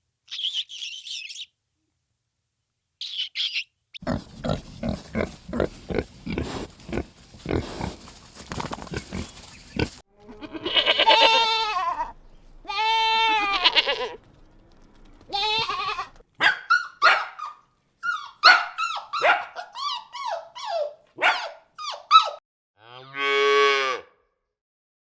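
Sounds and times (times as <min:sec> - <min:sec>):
rough animal sounds: 0:04.0 - 0:11.7
quavering bleats: 0:04.0 - 0:14.2
sharp barks: 0:16.4 - 0:17.6, 0:18.4 - 0:19.7, 0:21.2 - 0:22.4.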